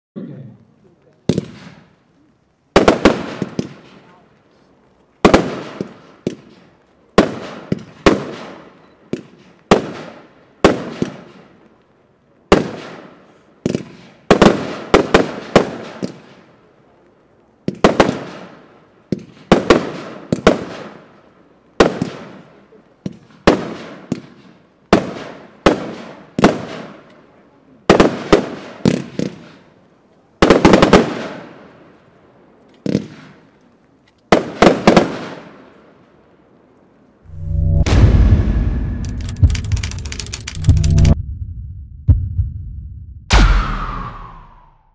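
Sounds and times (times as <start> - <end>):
firework shots banging: 1.3 - 1.9.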